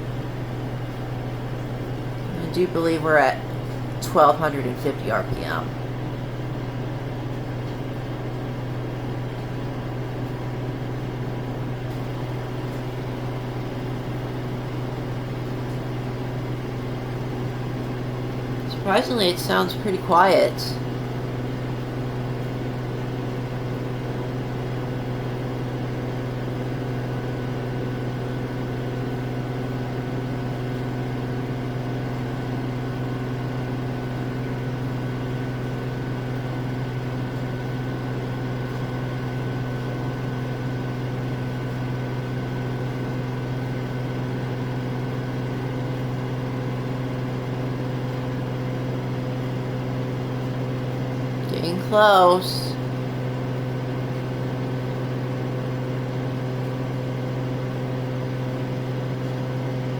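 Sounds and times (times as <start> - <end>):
washing machine spinning: 0.0 - 59.9.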